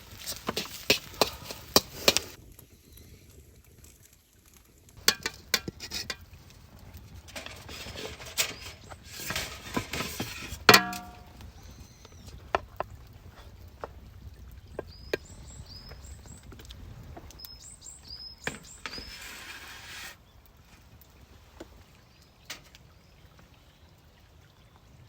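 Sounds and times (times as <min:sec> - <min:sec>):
metal spoon scraping metal pan: 0:00.1 - 0:02.4, 0:05.0 - 0:06.2, 0:07.2 - 0:11.4, 0:18.5 - 0:20.2
ringing metal clang: 0:10.7 - 0:11.4.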